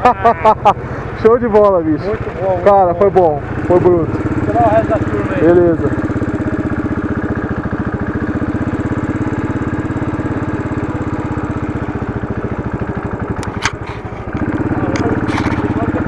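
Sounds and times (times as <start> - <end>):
motorcycle engine idling: 0.0 - 16.0
sharp click: 13.4 - 15.8.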